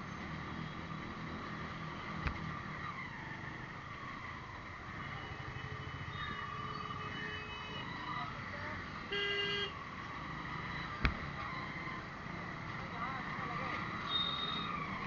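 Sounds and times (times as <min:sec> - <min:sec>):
road traffic rumble: 0:00.0 - 0:15.0
vehicle horn tooting: 0:09.1 - 0:09.8.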